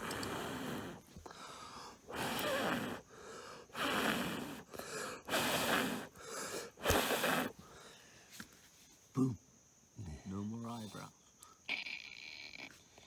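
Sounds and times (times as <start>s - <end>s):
person blowing hard breaths: 0.0s - 8.1s.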